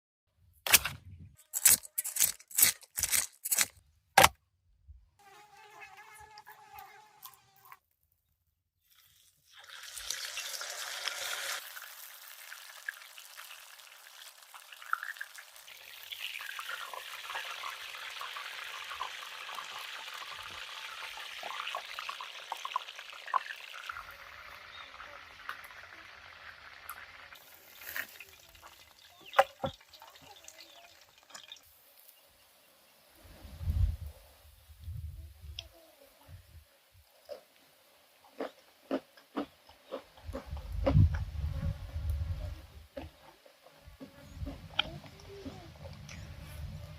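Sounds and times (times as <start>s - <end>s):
fish sizzling in hot oil: 8.8s - 32.2s.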